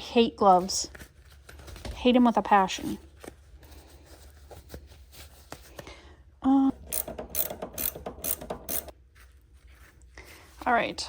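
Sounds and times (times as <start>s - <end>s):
ratchet wrench clicking: 6.8s - 8.9s.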